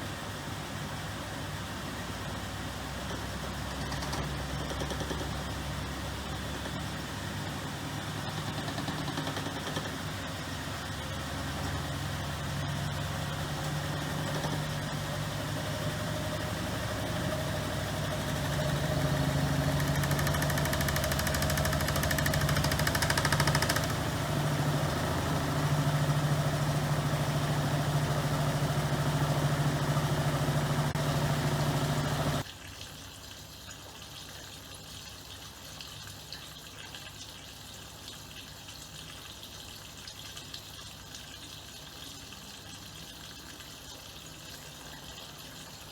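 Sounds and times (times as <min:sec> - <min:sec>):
washing machine motor hum: 0:09.9 - 0:32.4.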